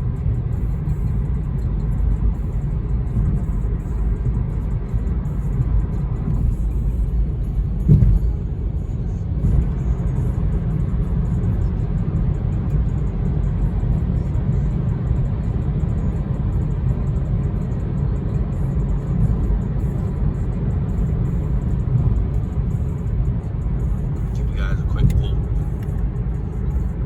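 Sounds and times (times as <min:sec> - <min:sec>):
car road and engine rumble: 0:00.0 - 0:27.0
brief thump: 0:07.9 - 0:08.2.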